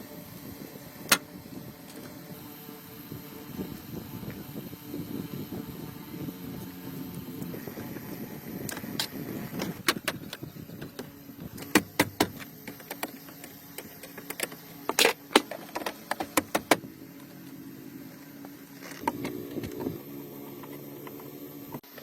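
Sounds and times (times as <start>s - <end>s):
low wavering hum: 0.0s - 21.9s
sharp clicks and knocks: 8.6s - 17.3s.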